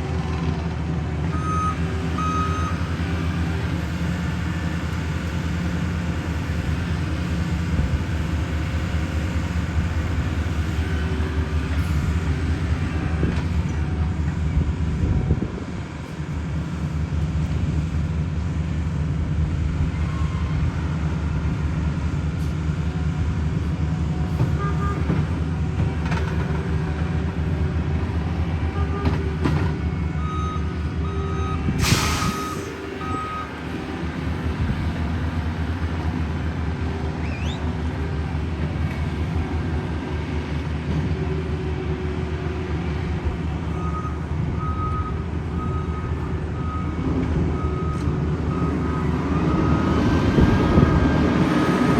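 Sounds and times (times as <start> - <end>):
diesel paving machine running: 0.0 - 51.9
reversing beeper: 1.3 - 2.9, 30.2 - 33.8
loud hiss: 31.8 - 32.8.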